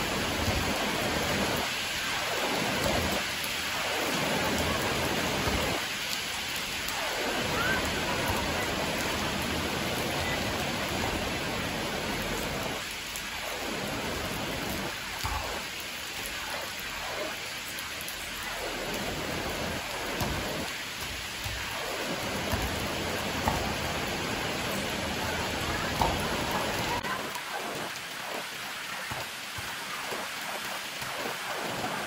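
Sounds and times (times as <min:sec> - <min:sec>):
rain on concrete: 0:00.0 - 0:32.0.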